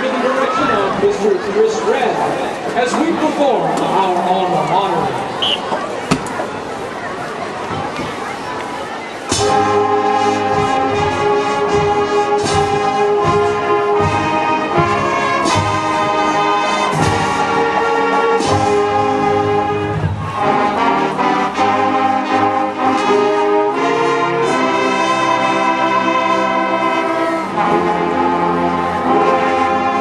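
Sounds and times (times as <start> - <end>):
marching band brass chords: 0.0 - 6.9, 9.2 - 30.0.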